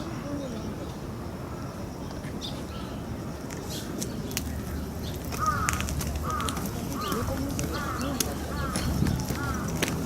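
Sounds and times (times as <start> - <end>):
crow cawing: 4.6 - 9.9.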